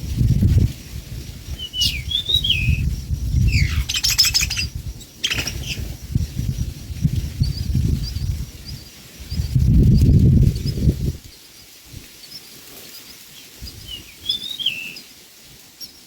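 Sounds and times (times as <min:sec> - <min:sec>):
small bird chirping: 0:01.6 - 0:06.7, 0:07.3 - 0:15.1.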